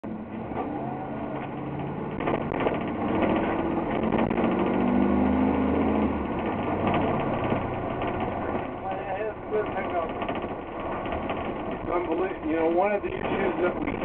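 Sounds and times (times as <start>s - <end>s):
bus engine accelerating: 0.0s - 14.0s
cabin rattle: 1.3s - 4.8s, 6.3s - 14.0s.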